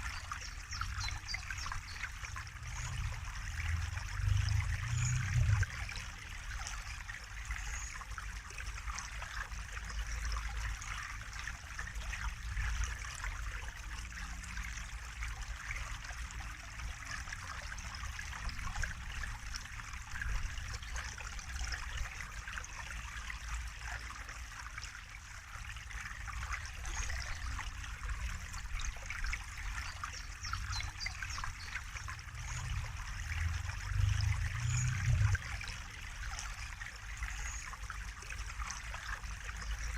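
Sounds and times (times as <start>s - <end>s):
water trickling: 0.0s - 39.9s
low rumble: 32.2s - 35.5s.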